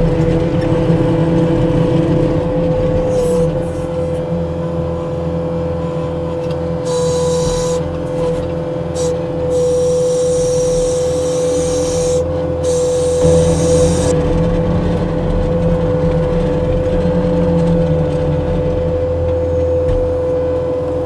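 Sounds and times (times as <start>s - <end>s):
diesel engine running: 0.0s - 21.0s
steady whine: 0.0s - 21.0s.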